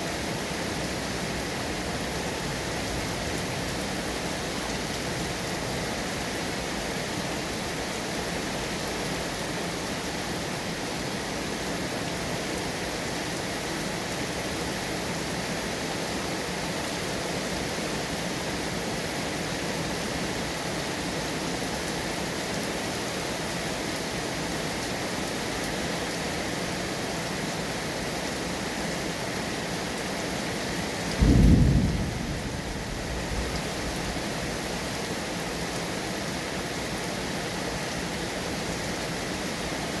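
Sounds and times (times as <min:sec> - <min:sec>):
heavy rain falling: 0:00.0 - 0:40.0
deep rumble of thunder: 0:31.1 - 0:34.2.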